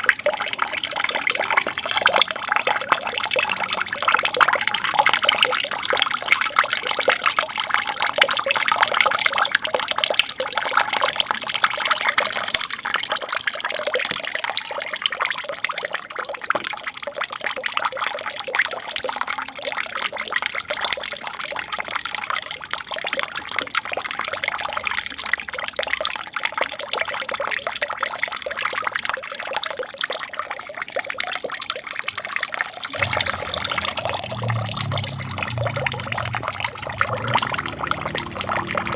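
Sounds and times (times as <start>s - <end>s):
aquarium water trickling: 0.0s - 38.9s
low hum: 32.9s - 38.9s.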